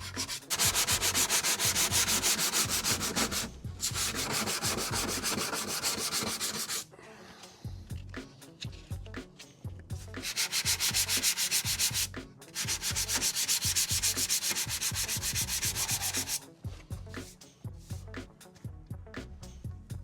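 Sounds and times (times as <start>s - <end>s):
sandpaper scraping body filler: 0.0s - 6.8s, 10.2s - 16.4s.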